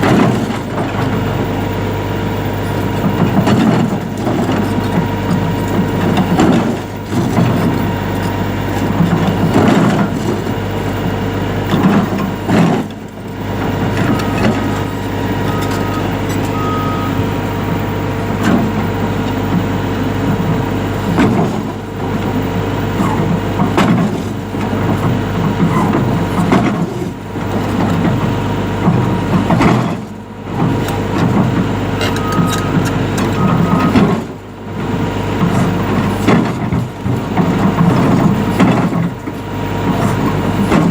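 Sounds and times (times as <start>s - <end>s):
excavator diesel engine under load: 0.0s - 40.9s
short beeps: 15.4s - 17.2s, 32.2s - 32.8s.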